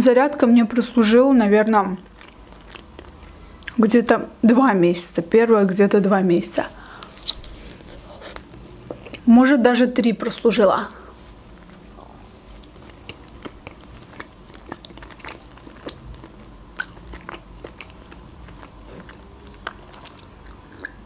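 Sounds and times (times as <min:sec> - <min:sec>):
close chewing: 0:01.7 - 0:03.8, 0:06.8 - 0:09.3, 0:11.2 - 0:21.0
wet mouth clicks and smacks: 0:19.6 - 0:21.0.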